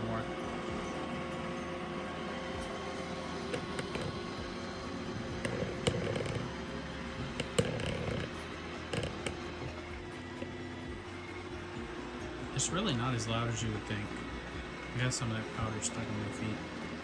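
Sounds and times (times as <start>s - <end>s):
robot vacuum humming: 0.0s - 17.0s
sharp clicks and knocks: 7.2s - 9.5s.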